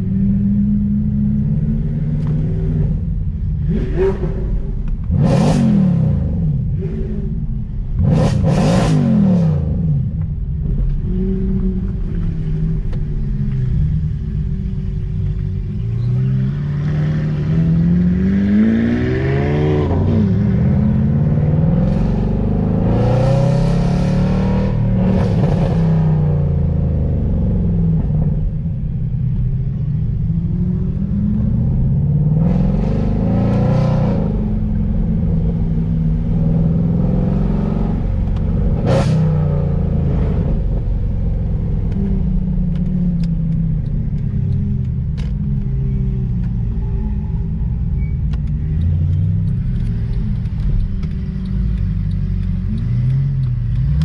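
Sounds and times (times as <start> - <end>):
car engine revving: 0.0 - 54.0
gear shifts: 37.9 - 54.0.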